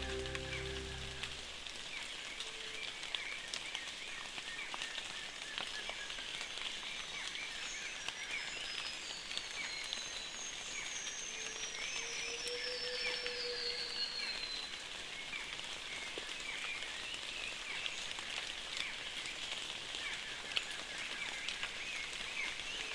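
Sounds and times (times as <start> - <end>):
thin high call: 0.0 - 1.5
rain on foliage: 0.0 - 22.9.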